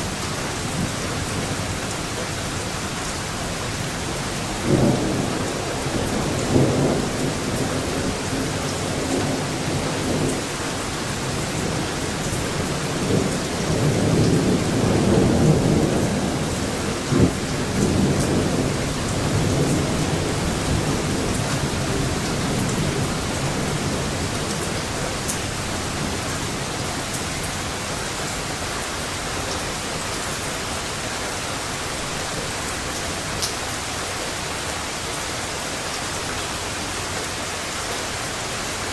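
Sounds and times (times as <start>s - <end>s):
steady rain hiss: 0.0s - 38.9s
thunder rumbling: 4.5s - 29.4s.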